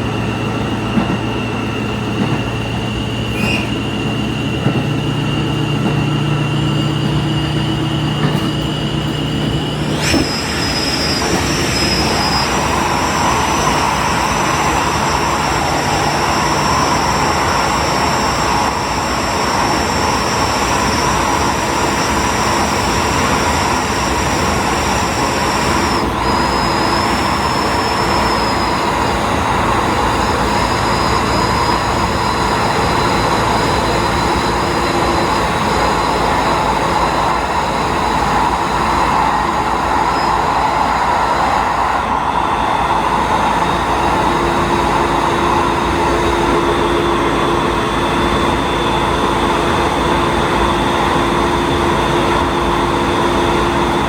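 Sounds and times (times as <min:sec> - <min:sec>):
diesel railcar engine: 0:00.0 - 0:54.0
wheels on rails: 0:00.0 - 0:54.0.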